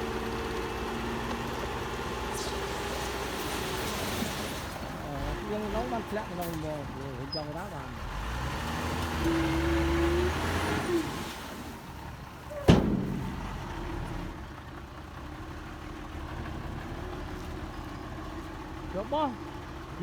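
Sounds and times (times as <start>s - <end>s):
diesel engine running: 0.0s - 20.0s
loud metal bang: 12.6s - 14.4s.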